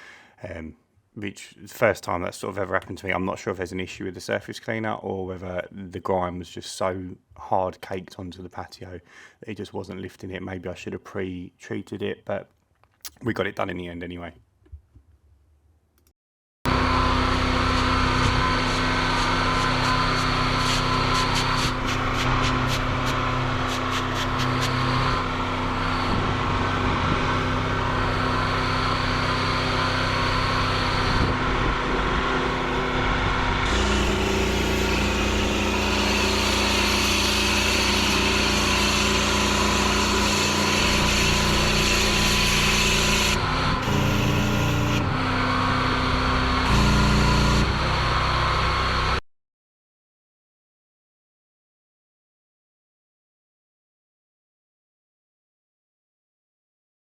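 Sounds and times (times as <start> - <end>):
pressure washer engine running: 16.7 - 45.0, 46.6 - 48.0.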